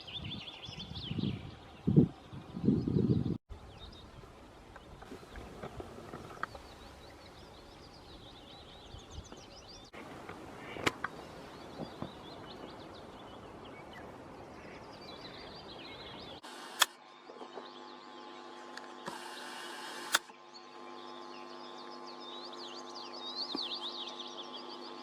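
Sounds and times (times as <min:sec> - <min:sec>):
small bird singing: 0:00.0 - 0:04.2, 0:04.8 - 0:10.0, 0:10.6 - 0:25.0
steady hum: 0:04.3 - 0:25.0
sharp click: 0:16.4 - 0:17.0, 0:18.7 - 0:20.4.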